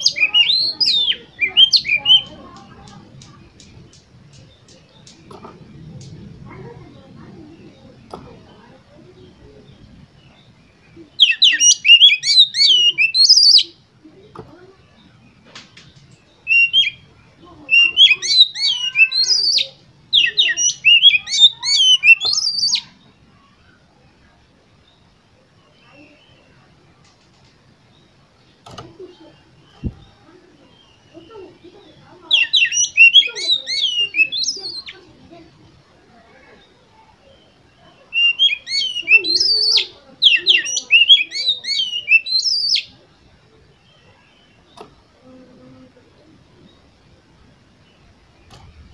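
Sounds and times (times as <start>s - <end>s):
bird singing whistles and chirps: 0.0s - 6.2s, 9.2s - 13.8s, 15.4s - 23.0s, 32.3s - 35.1s, 36.6s - 43.0s.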